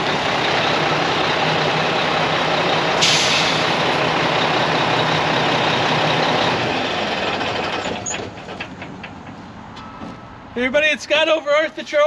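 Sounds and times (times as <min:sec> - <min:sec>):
diesel truck engine running: 0:00.0 - 0:10.5
air brake hiss: 0:03.0 - 0:03.8.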